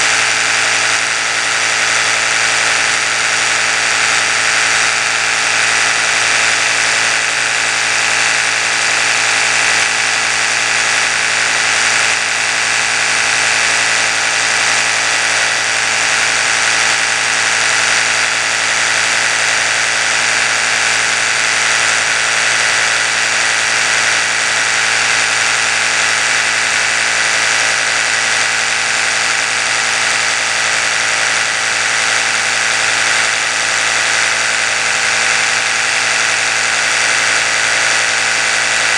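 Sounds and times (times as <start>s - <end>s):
electric toothbrush humming: 0.0s - 38.9s.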